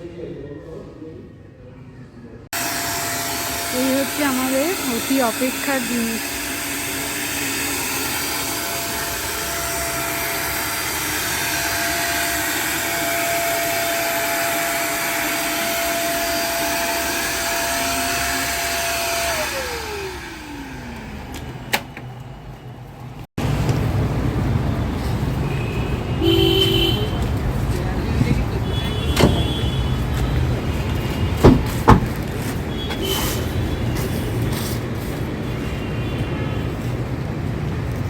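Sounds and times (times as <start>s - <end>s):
electric fan motor whining: 2.6s - 22.3s.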